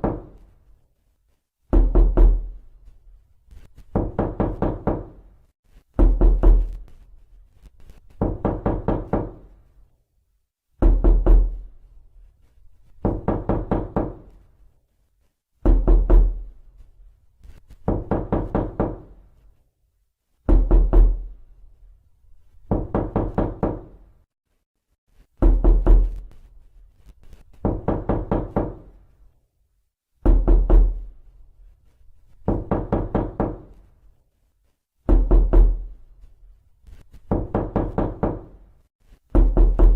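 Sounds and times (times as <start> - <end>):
knocking on a door: 0.0 - 0.4, 1.7 - 2.6, 3.9 - 5.3, 6.0 - 6.9, 8.2 - 9.5, 10.8 - 11.7, 13.0 - 14.3, 15.6 - 16.5, 17.8 - 19.2, 20.5 - 21.3, 22.6 - 24.0, 25.4 - 26.4, 27.6 - 29.0, 30.2 - 31.1, 32.4 - 33.8, 35.1 - 36.0, 37.2 - 38.6, 39.3 - 39.9.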